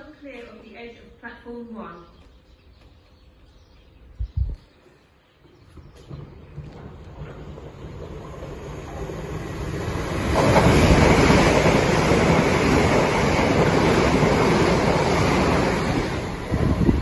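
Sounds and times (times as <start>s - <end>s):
passenger train passing: 6.1s - 17.0s.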